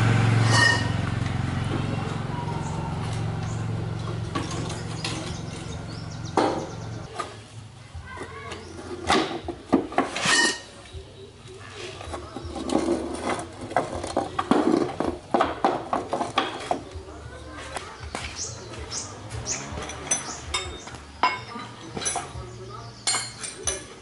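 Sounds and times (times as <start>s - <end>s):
low motor hum: 0.0s - 7.1s
metal clicks and clinks: 19.8s - 22.4s.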